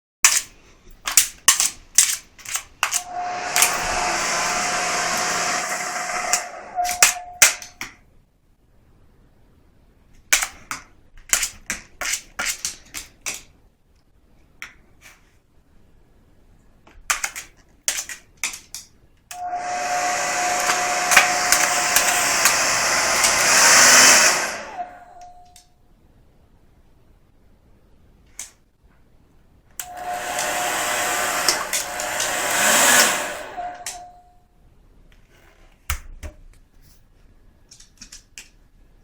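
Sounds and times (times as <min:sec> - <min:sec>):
hair dryer running: 0:03.0 - 0:06.8, 0:19.3 - 0:25.2, 0:29.8 - 0:34.2.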